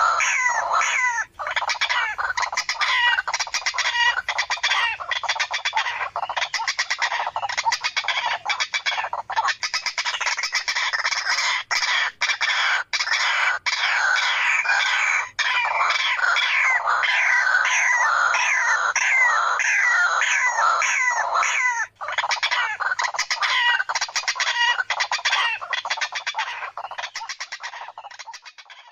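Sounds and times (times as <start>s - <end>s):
waterhen calls: 0.0s - 28.9s.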